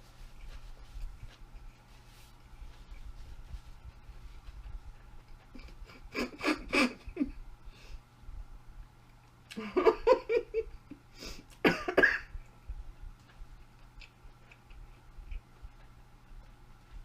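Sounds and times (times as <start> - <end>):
woman coughing: 11.6 - 12.4.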